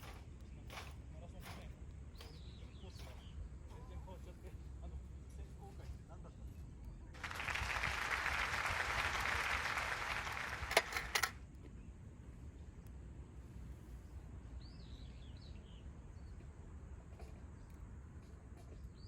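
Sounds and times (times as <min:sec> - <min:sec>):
birds chirping: 0:01.6 - 0:04.2.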